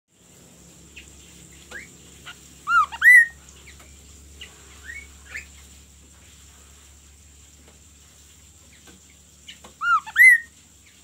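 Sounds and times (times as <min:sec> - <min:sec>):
songbird chirping: 0:00.8 - 0:05.8, 0:08.6 - 0:11.0.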